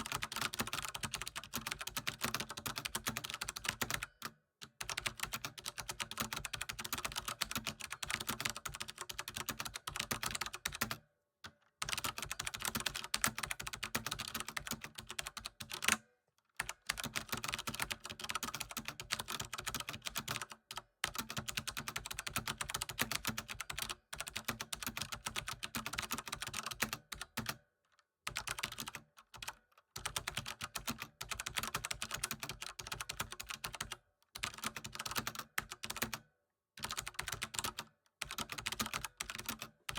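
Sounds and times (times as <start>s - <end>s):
computer keyboard typing: 0.0s - 11.0s, 11.8s - 16.0s, 16.6s - 27.6s, 28.3s - 39.9s.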